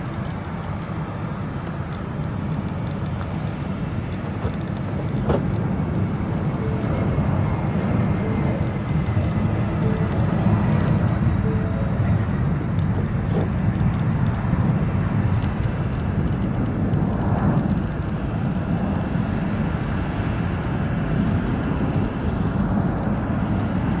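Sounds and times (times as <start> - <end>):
aircraft engines rumbling: 0.0 - 24.0.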